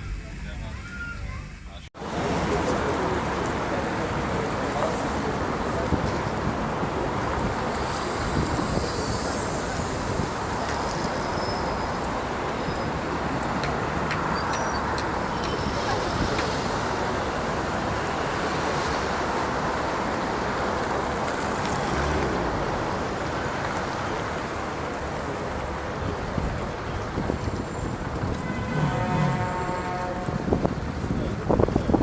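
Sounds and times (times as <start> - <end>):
wind and water rushing: 2.0 - 10.6.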